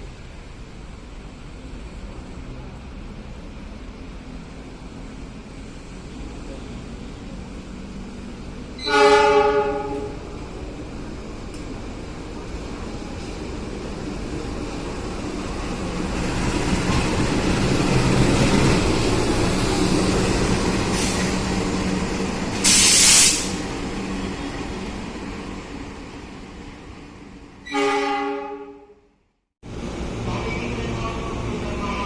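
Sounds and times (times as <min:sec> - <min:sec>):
train rumbling past: 0:00.0 - 0:28.7, 0:29.6 - 0:32.0
locomotive horn: 0:08.8 - 0:10.4, 0:27.6 - 0:29.0, 0:30.2 - 0:32.0
hiss of air: 0:20.8 - 0:21.5, 0:22.6 - 0:23.6.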